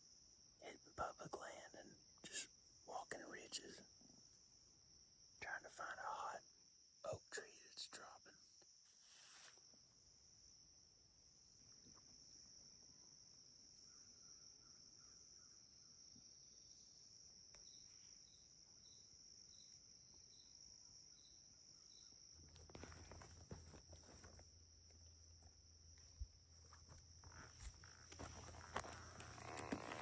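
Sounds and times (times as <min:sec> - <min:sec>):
crickets trilling: 0:00.0 - 0:30.0
rustling: 0:08.9 - 0:09.6, 0:26.7 - 0:30.0.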